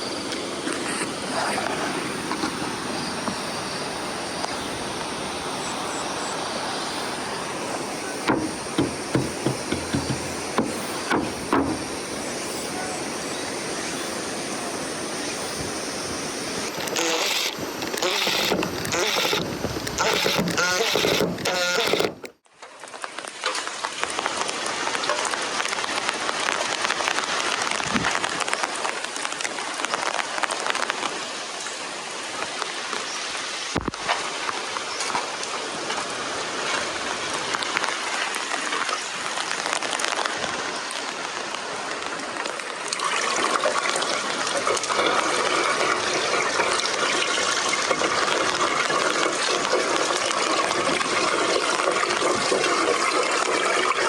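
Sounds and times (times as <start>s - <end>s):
water rushing: 0.0s - 54.0s.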